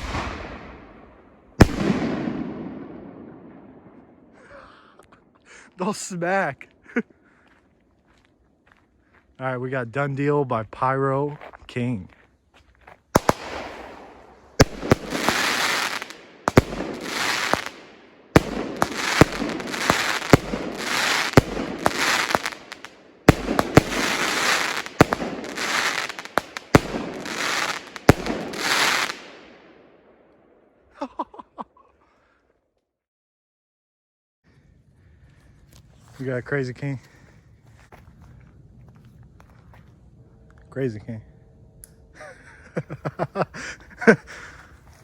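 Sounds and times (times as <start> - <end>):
firework bangs with hiss: 0.0 - 0.7, 1.6 - 2.7, 13.2 - 29.3.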